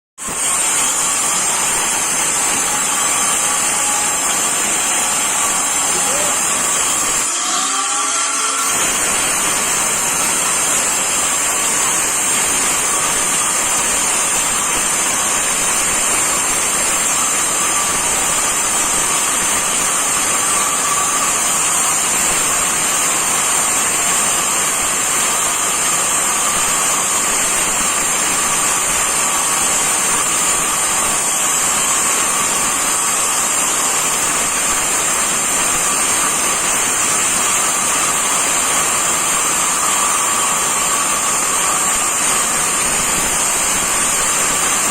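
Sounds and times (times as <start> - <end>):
angle grinder running: 0.2 - 44.9.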